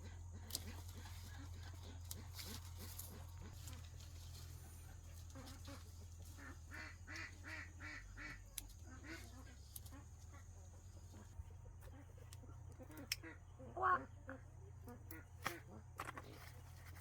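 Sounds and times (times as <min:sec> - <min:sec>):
poultry calling: 0:00.0 - 0:15.8.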